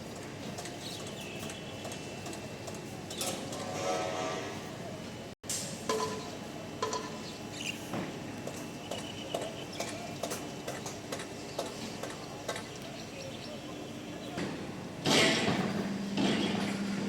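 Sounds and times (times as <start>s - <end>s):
knocks and clanks of struck metal: 15.0s - 16.9s.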